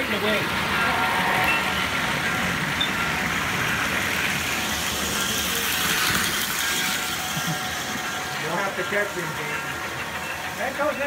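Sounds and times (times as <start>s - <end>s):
toy handcar motor clattering: 3.4s - 11.0s.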